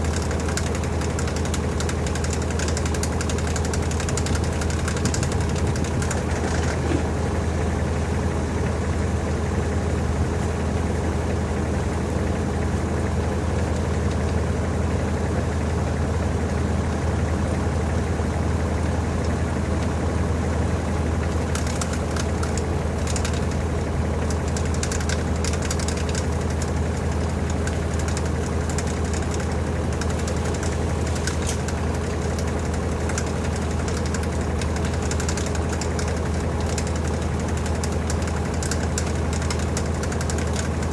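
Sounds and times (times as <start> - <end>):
washing machine motor hum: 0.0 - 40.9.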